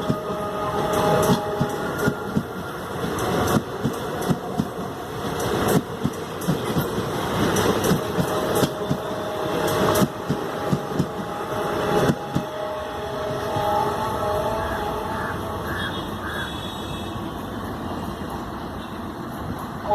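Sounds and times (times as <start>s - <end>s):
train wheels clattering: 0.0s - 12.6s
train rumbling with faint whine: 0.0s - 19.9s.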